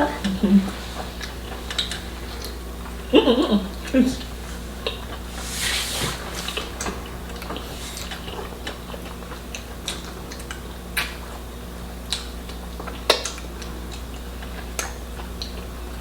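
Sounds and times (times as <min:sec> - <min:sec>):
steady low hum: 0:00.0 - 0:16.0
person chewing meat: 0:00.2 - 0:03.1, 0:06.6 - 0:16.0.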